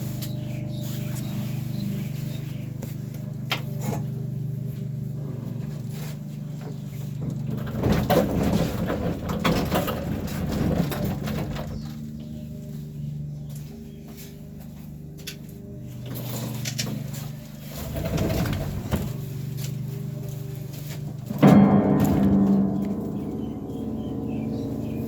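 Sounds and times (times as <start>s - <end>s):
steady low hum: 0.0s - 25.0s
piano rumbling across floor: 3.8s - 12.5s, 16.4s - 25.0s
sharp knocks: 21.4s - 25.0s.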